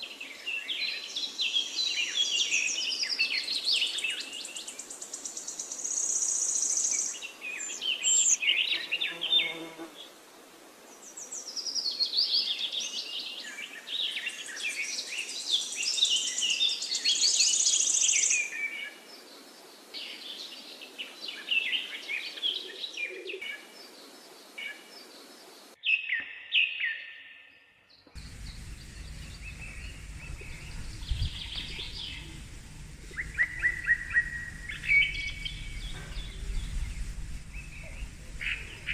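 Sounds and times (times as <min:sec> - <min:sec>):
small birds chirping: 0:28.0 - 0:38.9
low steady rumble: 0:28.2 - 0:38.9.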